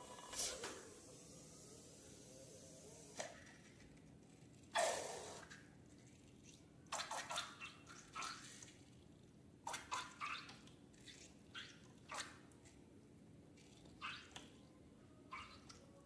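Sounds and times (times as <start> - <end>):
slime squelching: 4.2 - 9.1, 9.7 - 12.8.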